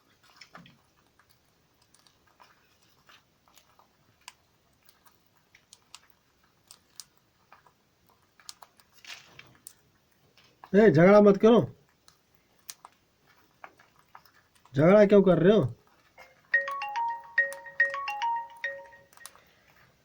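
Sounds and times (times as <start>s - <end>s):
parrots cracking food with beaks: 0.0s - 10.7s, 11.8s - 14.8s.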